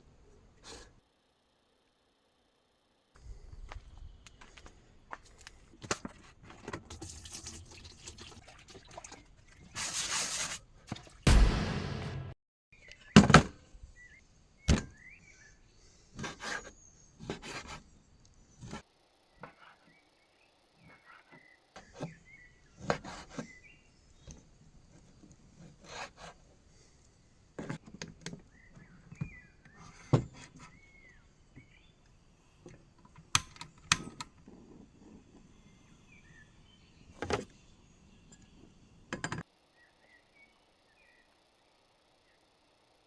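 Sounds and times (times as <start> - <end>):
small birds chirping: 13.9 - 25.6, 28.3 - 32.9, 35.4 - 39.0, 39.6 - 42.8.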